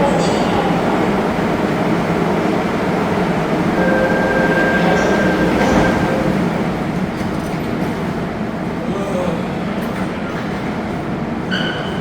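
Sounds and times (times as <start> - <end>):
train wheels rumbling on rail: 0.0 - 12.0
steady whine: 0.7 - 7.0.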